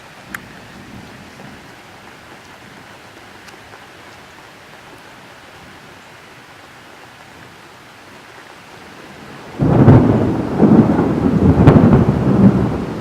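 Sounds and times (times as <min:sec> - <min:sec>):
rain hissing: 0:00.0 - 0:13.0
thunder rumbling: 0:08.9 - 0:13.0
sharp thunder crack: 0:09.6 - 0:13.0.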